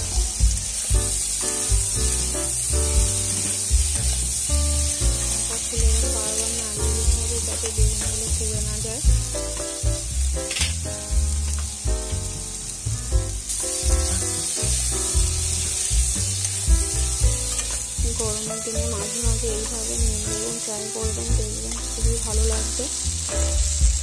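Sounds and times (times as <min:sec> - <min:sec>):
background music: 0:00.0 - 0:24.0
eggplant sizzling in hot oil: 0:00.0 - 0:24.0.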